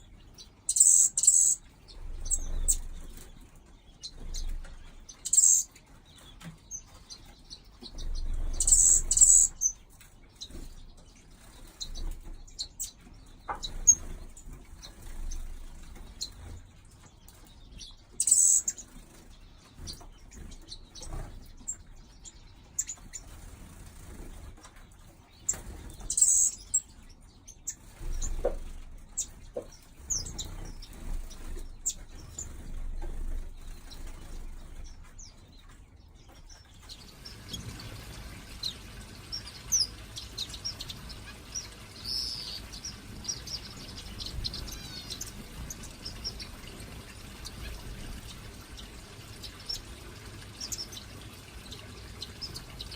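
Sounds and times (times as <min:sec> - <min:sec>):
small birds chirping: 0:00.0 - 0:52.9
wings fluttering: 0:22.7 - 0:26.9, 0:27.7 - 0:52.9.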